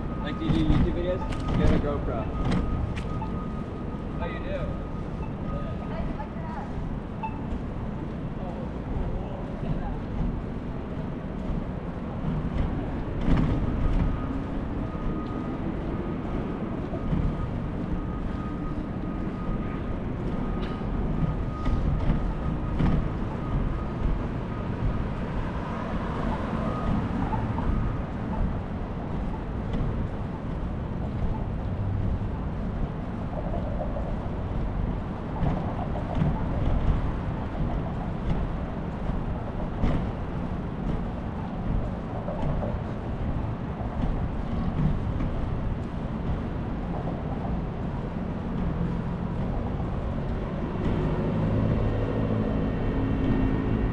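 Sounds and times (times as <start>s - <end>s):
passing vehicles rumble: 0.0s - 53.9s.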